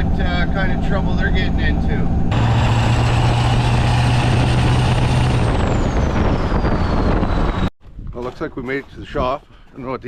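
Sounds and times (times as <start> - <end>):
vehicle engine and road noise: 0.0 - 7.7
high whine falling in pitch: 2.3 - 7.7.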